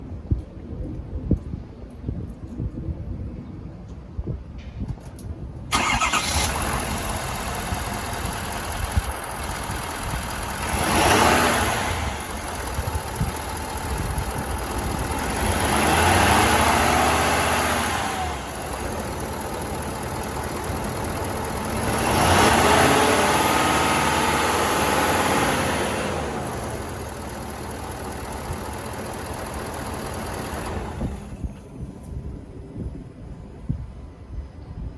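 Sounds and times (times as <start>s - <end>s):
truck engine cranking and starting: 5.7s - 32.1s
truck engine idling and revving: 5.7s - 32.3s.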